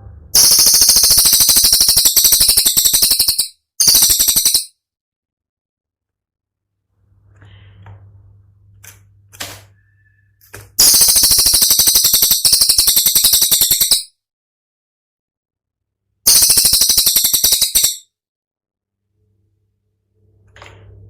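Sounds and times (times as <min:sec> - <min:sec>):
faint low hum: 0:00.0 - 0:00.4, 0:07.0 - 0:10.5
songbird rapid rattle: 0:00.4 - 0:04.7, 0:10.8 - 0:14.0, 0:16.3 - 0:18.0.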